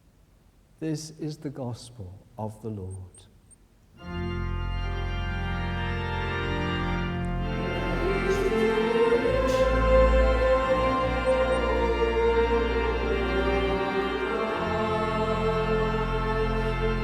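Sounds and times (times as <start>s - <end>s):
church organ chords: 4.0s - 17.0s
deep bass organ note: 4.0s - 17.0s.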